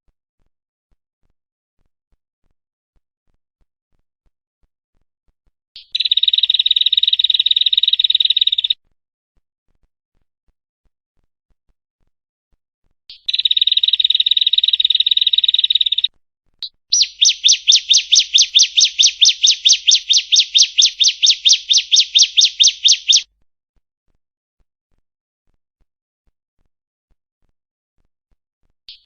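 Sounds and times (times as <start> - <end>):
bird calling and trilling: 5.8 - 8.8, 13.1 - 16.1, 16.9 - 23.2.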